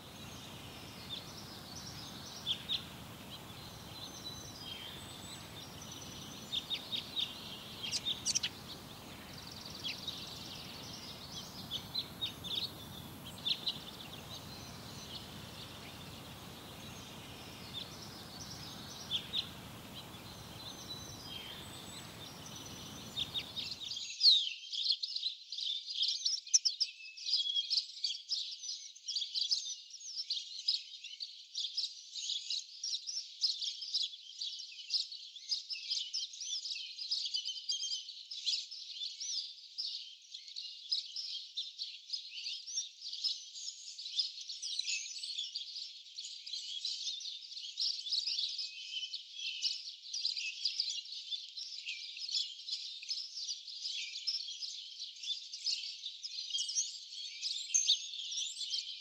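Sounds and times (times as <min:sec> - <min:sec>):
small birds chirping: 0:00.0 - 0:24.1.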